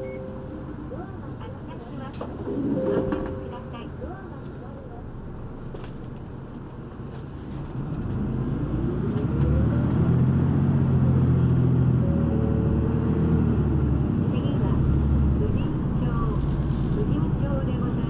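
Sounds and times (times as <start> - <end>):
bus diesel engine revving: 7.8 - 18.0.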